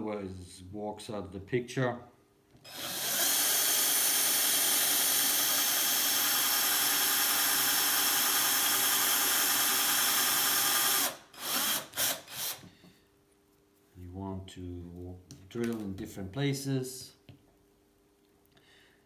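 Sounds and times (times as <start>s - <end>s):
electric drill boring: 2.7s - 12.7s.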